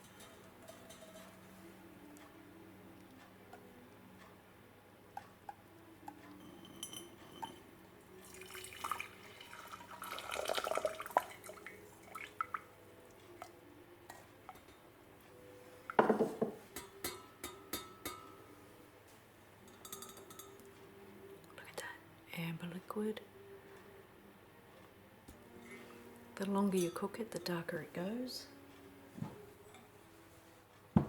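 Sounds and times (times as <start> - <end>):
kitchenware clinking: 0.0 - 1.4, 6.4 - 7.7, 15.9 - 18.4, 19.7 - 20.7
syrup pouring and splashing: 8.2 - 12.6
liquid dripping: 8.2 - 12.7.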